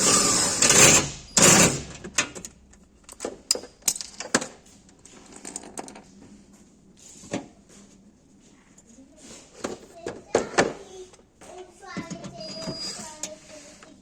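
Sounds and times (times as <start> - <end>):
metal tools clicking and clinking: 2.2 - 4.5.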